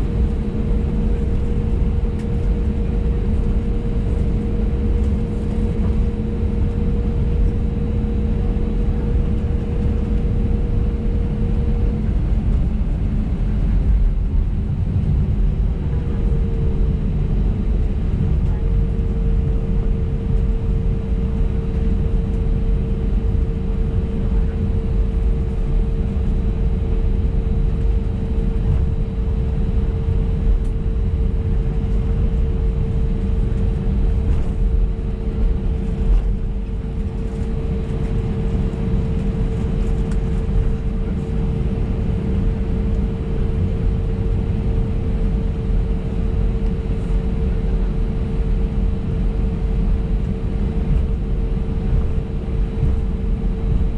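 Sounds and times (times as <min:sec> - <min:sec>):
steady cabin hum: 0:00.0 - 0:46.9.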